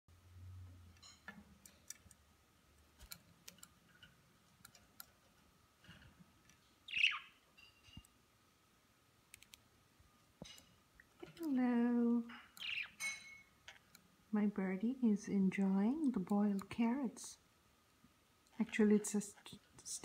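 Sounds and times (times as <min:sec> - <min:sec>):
budgerigar chirps: 0:06.9 - 0:07.4, 0:12.6 - 0:13.0
beaks pecking and cracking seeds: 0:12.2 - 0:14.1.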